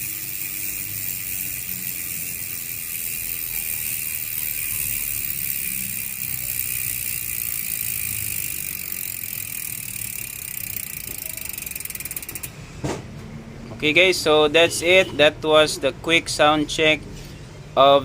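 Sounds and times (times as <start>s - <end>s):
bicycle hub freewheeling buzz: 0.0s - 12.6s.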